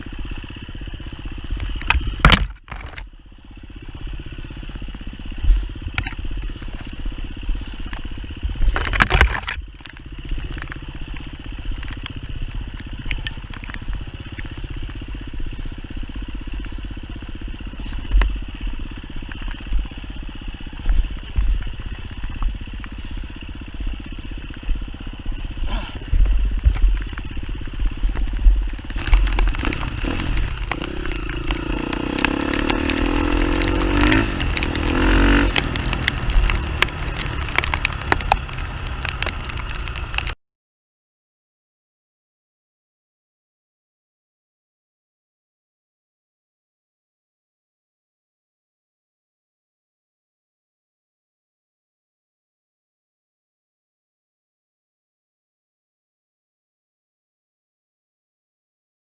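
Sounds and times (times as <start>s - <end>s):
dirt bike engine running: 0.0s - 40.4s
knocks and thumps on rough trail: 0.0s - 40.4s.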